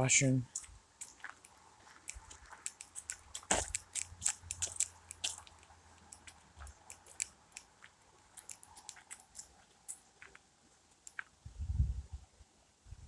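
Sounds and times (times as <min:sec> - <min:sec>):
footsteps crunching on leaves and twigs: 0:00.5 - 0:10.4.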